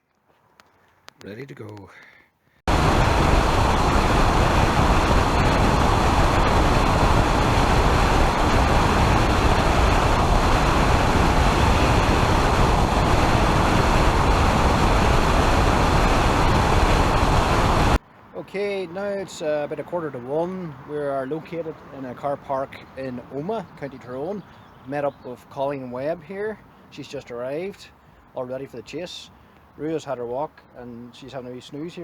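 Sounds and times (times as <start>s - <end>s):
car road and wind noise: 2.7s - 18.3s.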